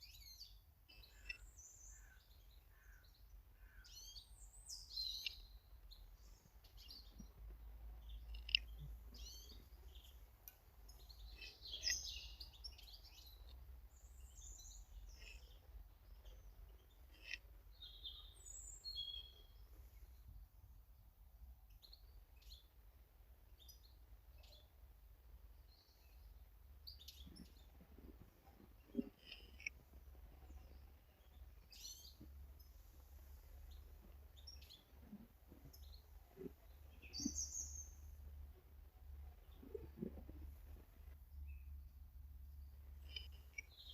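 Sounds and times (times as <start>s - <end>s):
birds chirping: 0.0s - 20.3s, 25.5s - 43.9s.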